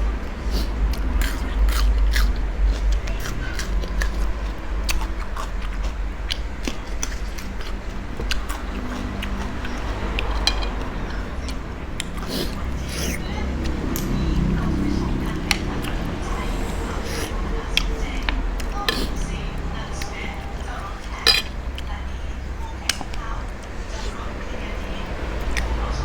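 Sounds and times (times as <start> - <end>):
steady low rumble: 0.0 - 26.0
person chewing and crunching: 0.2 - 22.0.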